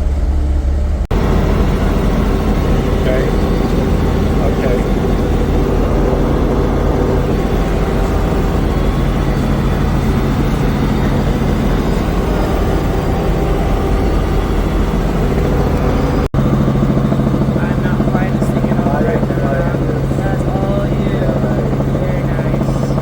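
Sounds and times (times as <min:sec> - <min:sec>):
helicopter cabin drone: 0:00.0 - 0:23.0.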